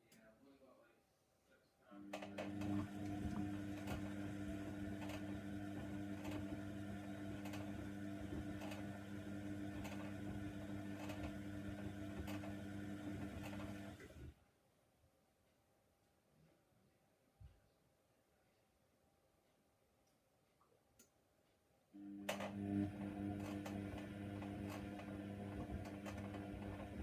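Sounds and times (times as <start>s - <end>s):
washer dryer humming: 2.2s - 14.3s, 22.0s - 27.0s.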